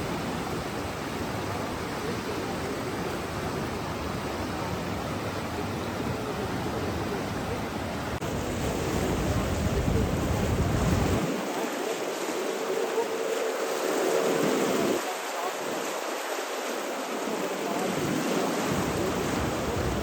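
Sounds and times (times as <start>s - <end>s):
rushing water: 0.0s - 20.0s.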